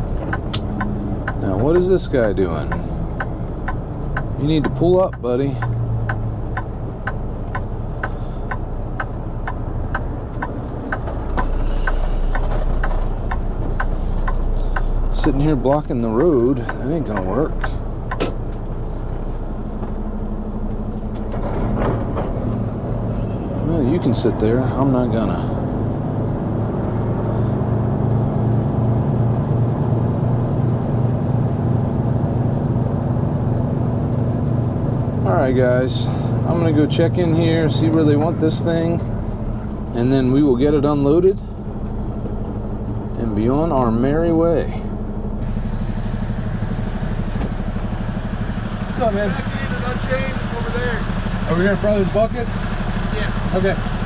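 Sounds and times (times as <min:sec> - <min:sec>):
diesel engine idling: 0:00.0 - 0:54.0
turn signal flasher clicking: 0:00.2 - 0:19.2.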